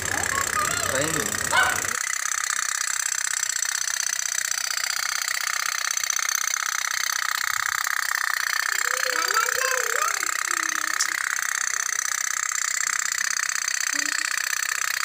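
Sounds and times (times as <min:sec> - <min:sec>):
toy steam boat putt-putt ticking: 0:00.0 - 0:15.0.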